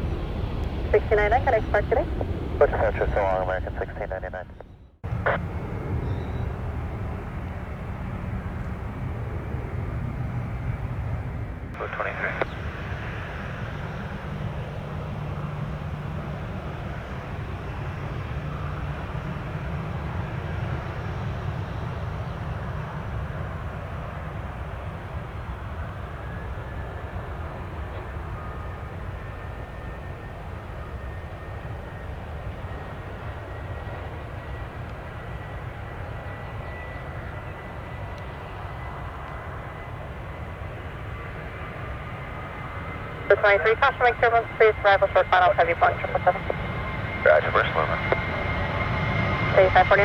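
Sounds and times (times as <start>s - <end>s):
jet engines rumbling: 0.0s - 50.0s
turbine whine: 0.0s - 50.0s.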